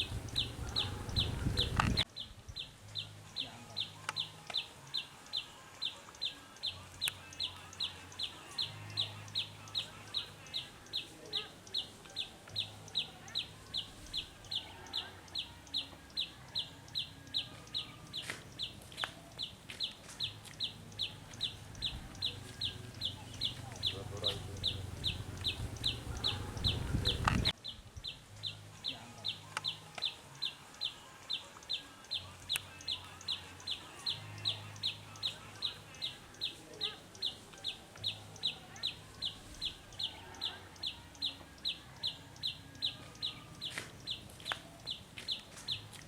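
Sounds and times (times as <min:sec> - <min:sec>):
bird calling downward notes: 0:00.0 - 0:02.0, 0:21.0 - 0:27.5
faint low hum: 0:00.0 - 0:04.1, 0:20.6 - 0:27.5.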